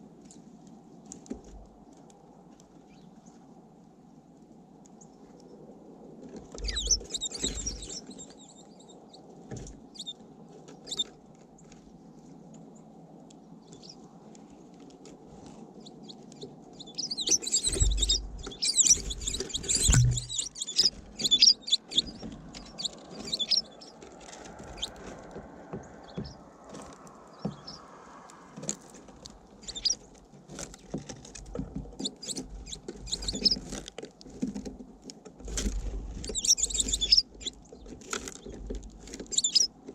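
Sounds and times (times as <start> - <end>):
small birds chirping: 2.6 - 4.2, 6.5 - 34.6, 35.4 - 39.9
low thumps: 17.3 - 23.6.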